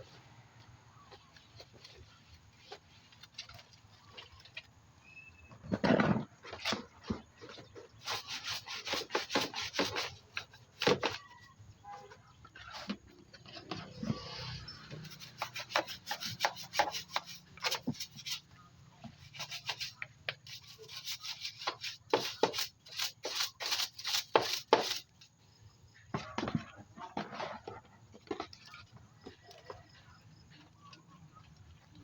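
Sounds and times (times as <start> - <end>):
brush scrubbing a hard surface: 6.7 - 11.3, 13.6 - 25.2.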